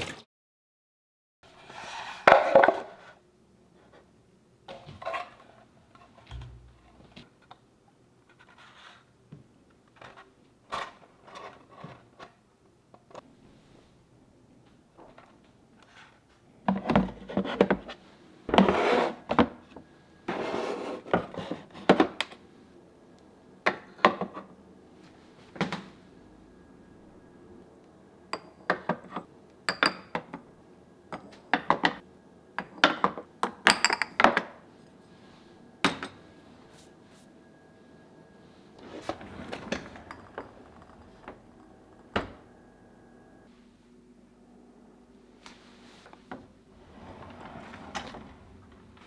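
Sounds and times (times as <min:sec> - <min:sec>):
kitchenware scraping: 0:01.5 - 0:03.2, 0:16.9 - 0:19.4, 0:20.3 - 0:22.1, 0:38.7 - 0:42.5, 0:46.8 - 0:49.0.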